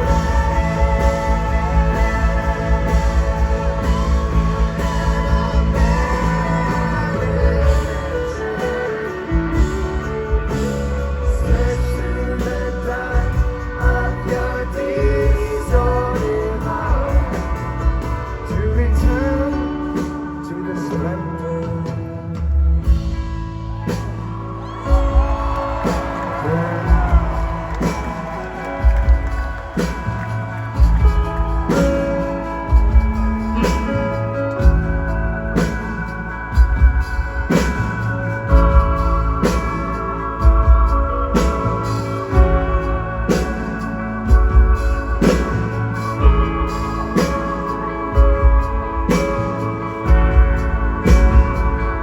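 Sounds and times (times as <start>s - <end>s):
person singing: 0.0s - 23.1s, 24.6s - 52.0s
rock band playing live: 0.0s - 52.0s.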